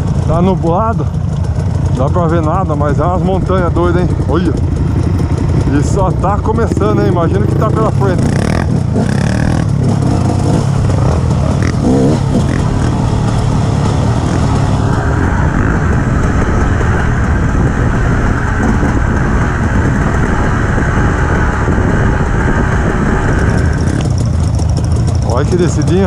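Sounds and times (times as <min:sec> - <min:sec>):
two-stroke dirt bike engine: 0:00.0 - 0:26.0.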